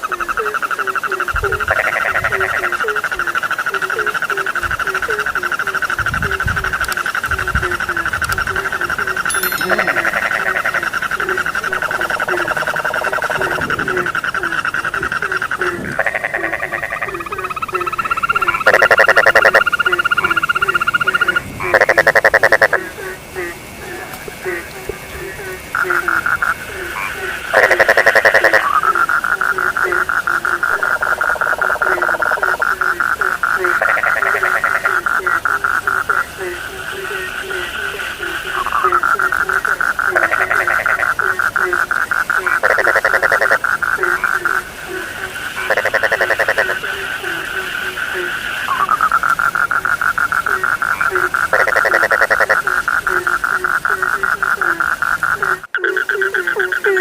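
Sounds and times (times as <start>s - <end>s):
frog trilling: 0.0s - 24.7s, 25.4s - 57.0s
frog short low call: 3.9s - 22.8s.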